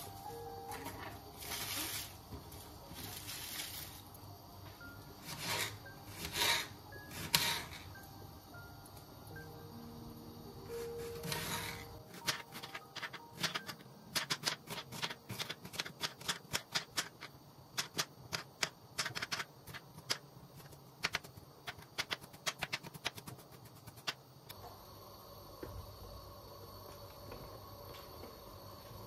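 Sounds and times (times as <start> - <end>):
sharp irregular clicks: 13.0 - 20.2.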